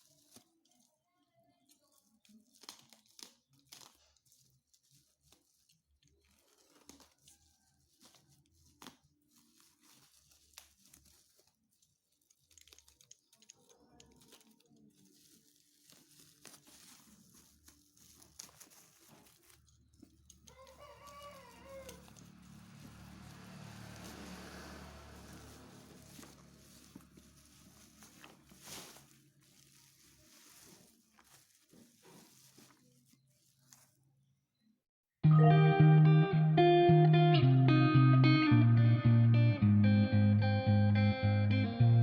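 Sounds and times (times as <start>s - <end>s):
small clicks and crackles: 0.0s - 34.1s
plastic packaging tearing: 1.8s - 34.0s.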